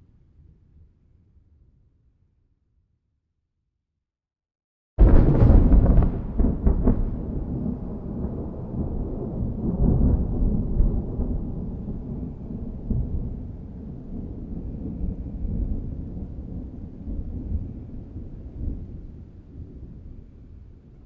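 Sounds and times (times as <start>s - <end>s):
thunder crack and rumble: 5.0s - 21.0s.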